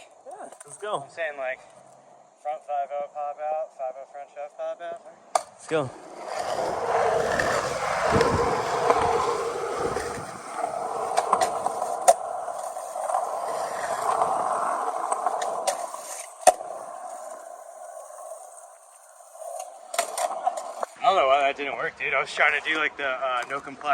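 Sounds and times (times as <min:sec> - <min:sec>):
skateboard clacks: 0:05.3 - 0:21.1
skateboard wheels rolling: 0:05.3 - 0:23.9.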